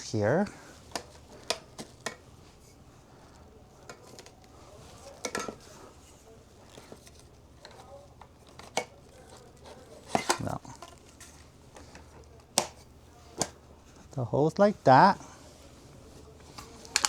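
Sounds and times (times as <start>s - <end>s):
vacuum tools clicking and knocking: 0.5s - 2.3s, 3.3s - 6.0s, 6.7s - 13.6s, 16.4s - 17.0s.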